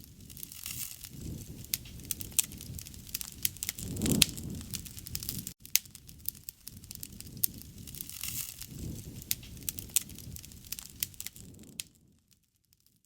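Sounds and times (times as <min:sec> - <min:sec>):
bonfire crackling: 0:00.0 - 0:13.0.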